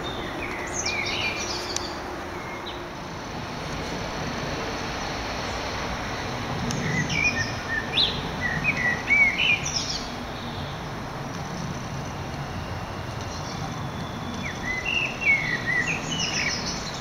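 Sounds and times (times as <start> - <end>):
small bird chirping: 0.0 - 2.8, 11.4 - 17.0
outdoor background rumble: 0.0 - 17.0.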